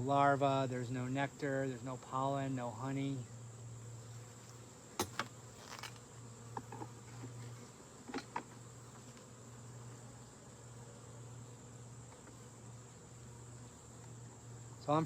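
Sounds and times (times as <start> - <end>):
honeybees buzzing: 0.0 - 15.0
sharp clicks and knocks: 5.0 - 6.0.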